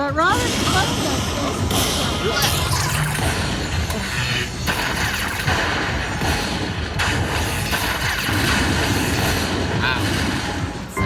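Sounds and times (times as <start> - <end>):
rapid clicking effects: 0.0 - 11.0
electronic slot machine music: 10.2 - 11.0.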